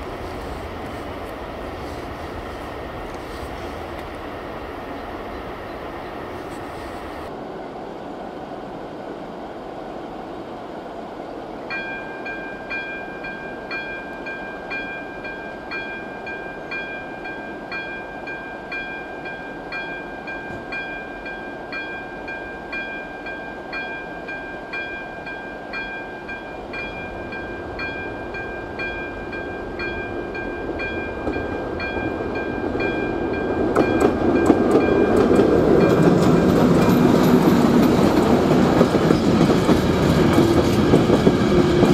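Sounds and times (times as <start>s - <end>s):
freight train rumble: 0.0s - 41.9s
wheels clicking over rail joints: 29.8s - 41.9s.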